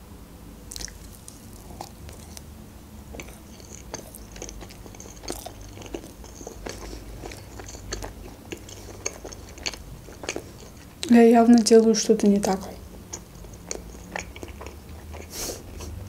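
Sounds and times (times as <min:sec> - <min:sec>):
biting and chewing marshmallow: 0:00.7 - 0:02.5, 0:03.1 - 0:16.0
wet mouth smacks and clicks: 0:00.7 - 0:02.5.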